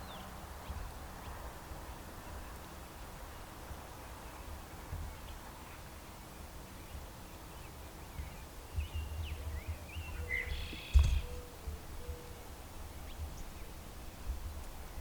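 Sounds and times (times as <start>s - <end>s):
wind rumbling on microphone: 0.0s - 15.0s
small birds chirping: 4.1s - 12.4s
sharp thump: 10.9s - 11.3s.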